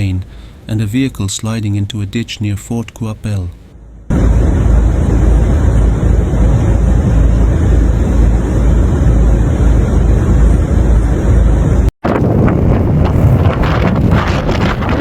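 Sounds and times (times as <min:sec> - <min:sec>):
wind buffeting microphone: 0:04.1 - 0:15.0.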